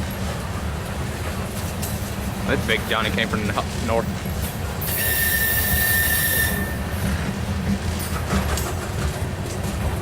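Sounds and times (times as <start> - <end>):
freight train wheels rumbling: 0.0 - 10.0
high wheel squeal: 4.8 - 7.0.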